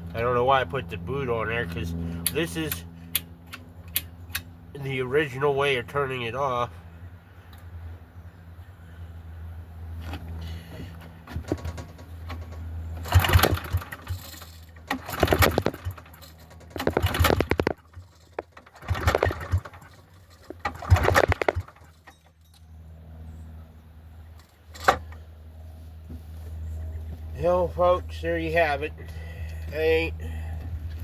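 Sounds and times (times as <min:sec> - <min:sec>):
engine turning over: 0:10.0 - 0:22.4
generator pull-start cord: 0:10.0 - 0:22.6, 0:24.4 - 0:25.3.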